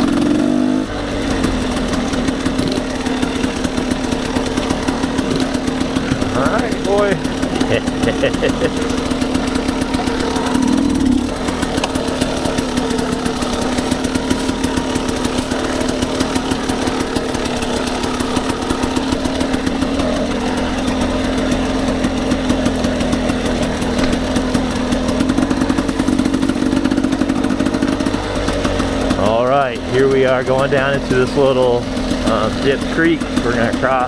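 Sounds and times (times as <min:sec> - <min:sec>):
dirt bike engine running: 0:00.0 - 0:34.0.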